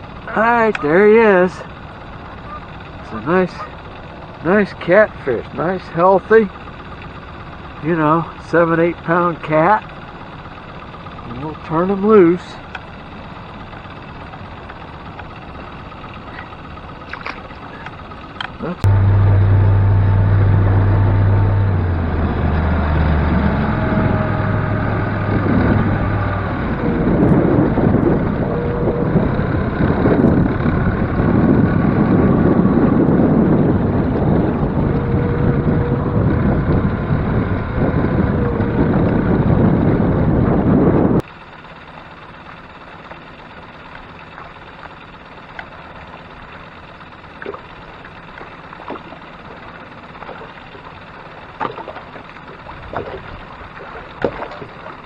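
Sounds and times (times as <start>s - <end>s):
boat motor humming: 0.0s - 55.0s
wind rushing over microphone: 18.8s - 41.2s.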